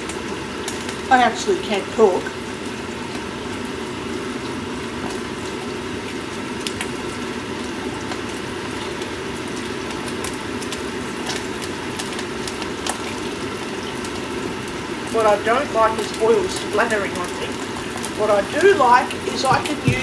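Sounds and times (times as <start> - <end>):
sausages sizzling in a frying pan: 0.0 - 20.0
fat crackling and popping: 15.0 - 20.0.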